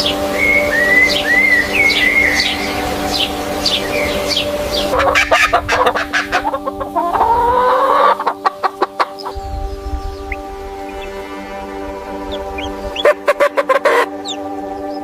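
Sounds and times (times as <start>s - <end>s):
background music with sustained tones: 0.0s - 15.0s
chickens clucking: 3.3s - 9.4s, 12.2s - 14.9s.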